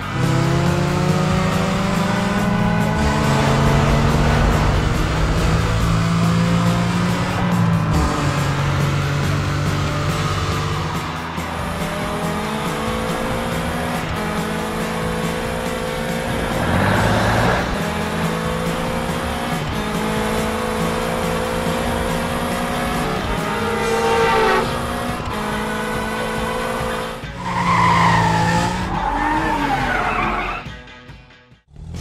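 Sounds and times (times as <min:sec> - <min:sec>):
background music: 0:00.0 - 0:32.0
tyre squeals: 0:27.4 - 0:30.7.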